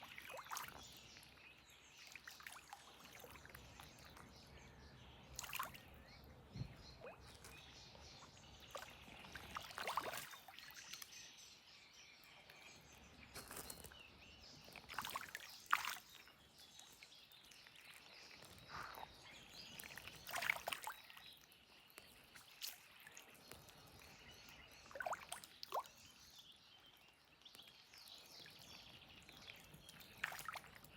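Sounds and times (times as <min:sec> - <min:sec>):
sharp splashes or drips: 0:00.0 - 0:01.3, 0:05.3 - 0:05.8, 0:08.7 - 0:11.1, 0:14.8 - 0:16.2, 0:19.7 - 0:21.2, 0:22.0 - 0:26.1, 0:29.3 - 0:30.9
water sloshing and trickling: 0:00.0 - 0:30.9.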